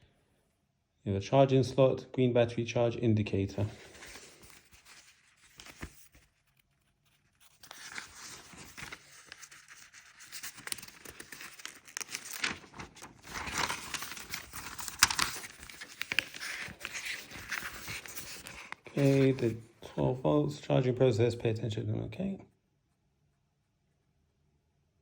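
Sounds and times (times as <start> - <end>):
paper rustling and crinkling: 3.6 - 19.6.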